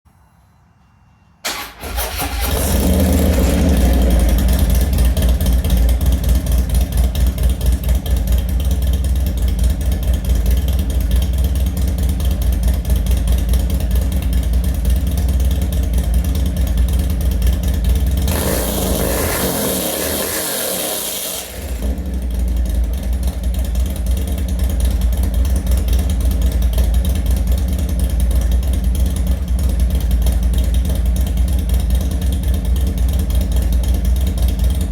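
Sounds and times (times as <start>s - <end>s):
motorcycle engine idling: 1.4s - 34.9s
hiss: 18.3s - 21.8s.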